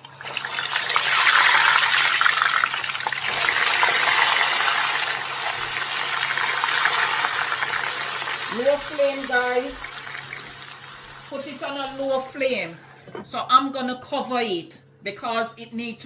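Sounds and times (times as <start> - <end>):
food sizzling in hot oil: 0.0 - 11.4.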